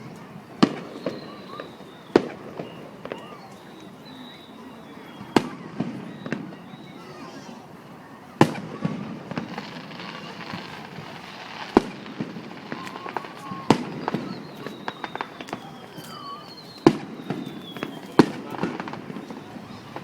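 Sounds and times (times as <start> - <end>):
fireworks popping and crackling: 0.0 - 7.2, 8.4 - 20.0
fireworks booming: 0.0 - 20.0.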